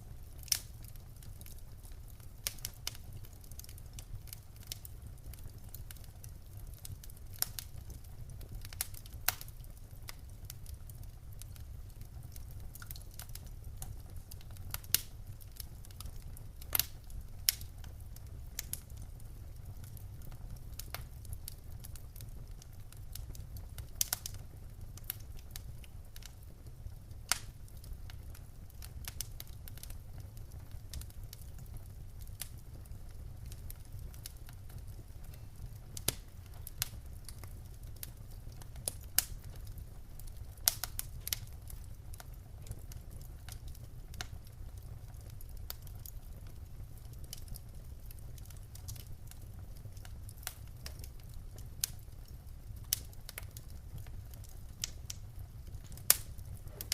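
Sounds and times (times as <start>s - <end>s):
wood fire crackling: 0.0s - 56.9s
fire pops: 0.1s - 56.9s.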